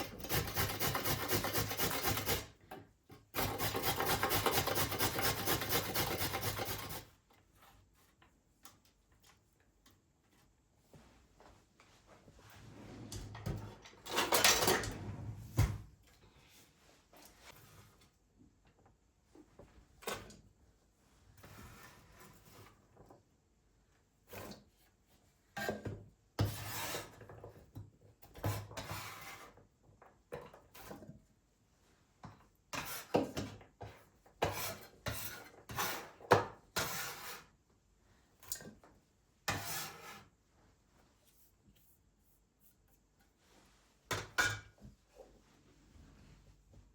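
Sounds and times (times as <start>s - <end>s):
household objects rubbing and scraping: 12.3s - 13.6s, 39.5s - 40.3s.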